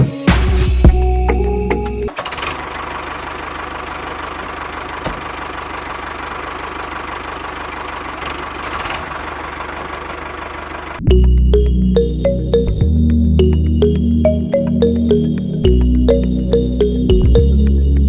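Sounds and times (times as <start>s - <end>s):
background music: 0.0s - 2.1s, 11.0s - 18.0s.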